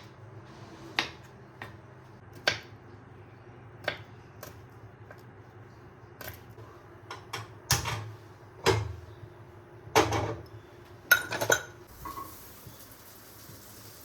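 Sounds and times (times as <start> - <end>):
cookware clinks and knocks: 11.1 - 12.3
food sizzling in a pan: 11.9 - 14.0.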